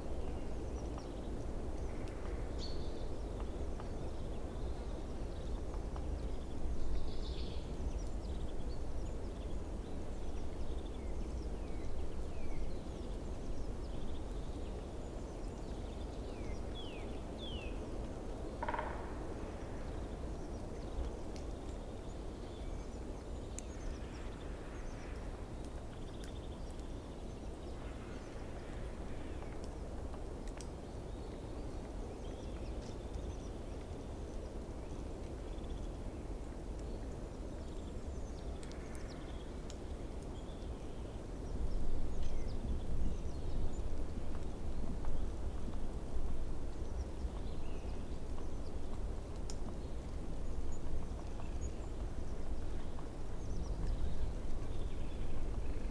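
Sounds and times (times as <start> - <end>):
low background noise: 0.0 - 55.9.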